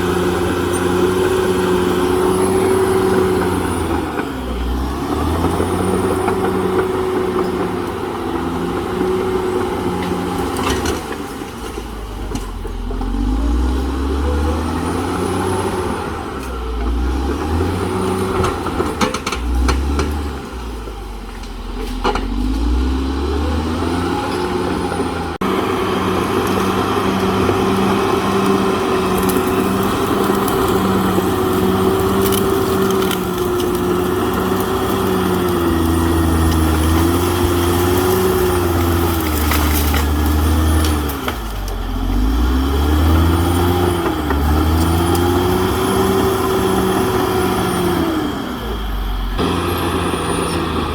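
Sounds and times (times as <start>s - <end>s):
bulldozer diesel engine under load: 0.0s - 50.9s
constant engine whine: 0.0s - 50.9s
sharp cracks and knocks: 29.2s - 41.8s.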